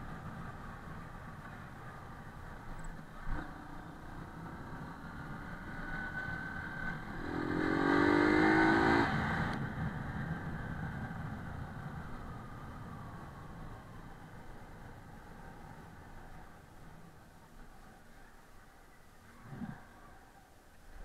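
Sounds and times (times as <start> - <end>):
small motorcycle engine revving: 5.2 - 9.6.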